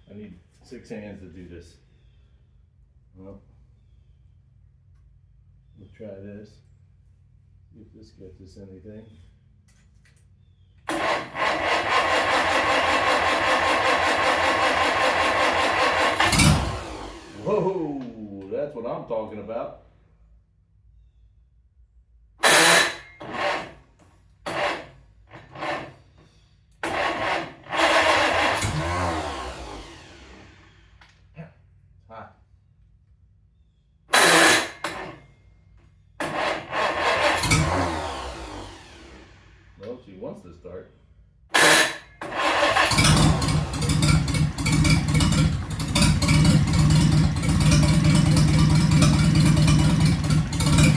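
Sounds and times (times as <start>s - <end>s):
starter cranking tractor engine: 10.9s - 18.3s, 22.4s - 26.2s, 26.8s - 31.1s, 34.1s - 35.2s, 36.2s - 40.0s, 41.5s - 50.9s.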